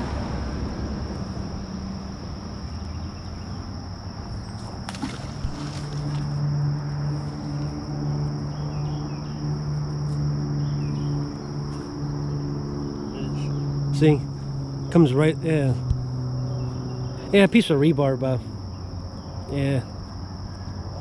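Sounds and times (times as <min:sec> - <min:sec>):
insects droning: 0:00.0 - 0:21.0
steady low hum: 0:00.0 - 0:21.0.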